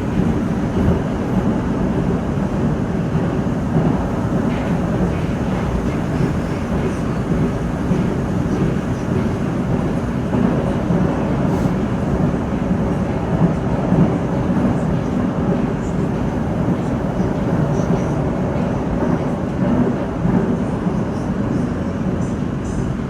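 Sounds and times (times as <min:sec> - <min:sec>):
metro train wheels on rails: 0:00.0 - 0:23.0.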